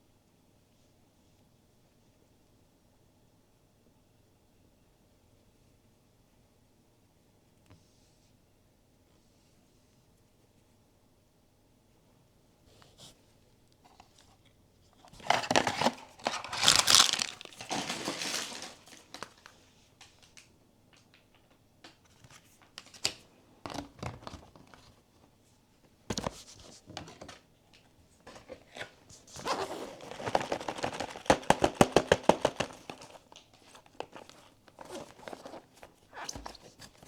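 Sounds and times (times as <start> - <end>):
plastic wrapping crinkling and tearing: 15.2 - 20.3, 28.3 - 37.0.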